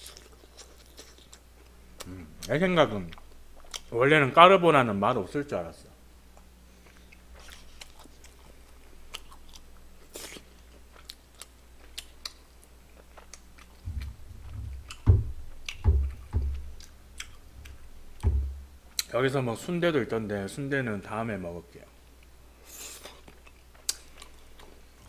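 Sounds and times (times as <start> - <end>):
person chewing: 0.0 - 4.0, 6.3 - 19.1, 22.2 - 25.0.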